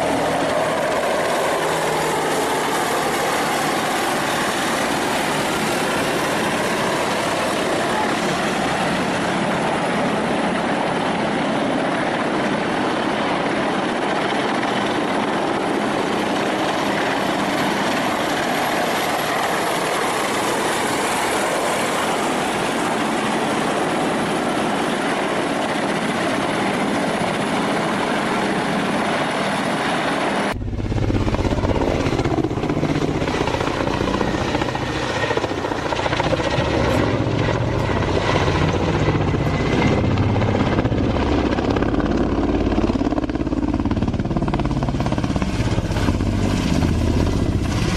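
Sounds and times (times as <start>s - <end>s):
helicopter rushing noise: 0.0s - 47.9s
heavy low rumble: 30.6s - 34.4s.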